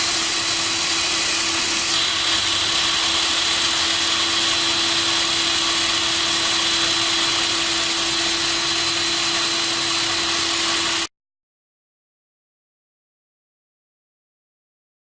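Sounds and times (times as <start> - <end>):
core drill motor whining: 0.0 - 11.1.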